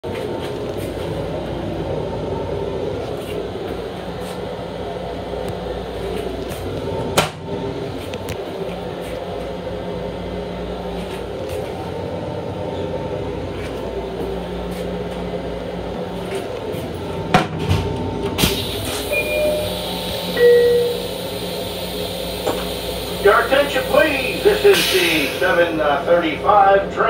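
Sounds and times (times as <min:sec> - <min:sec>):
railcar equipment humming: 0:00.0 - 0:27.0
short beeps: 0:19.1 - 0:19.8, 0:20.4 - 0:21.1
rushing hiss: 0:21.0 - 0:25.7.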